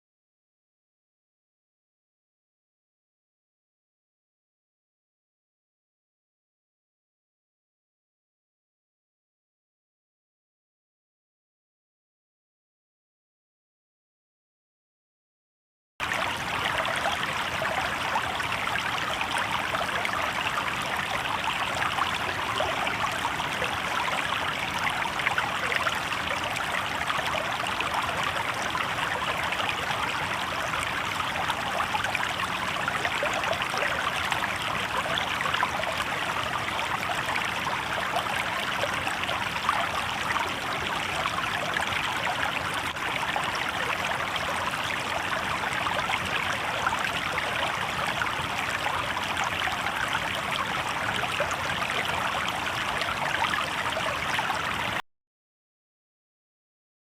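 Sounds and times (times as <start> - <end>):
river water babbling over stones: 16.0 - 55.0.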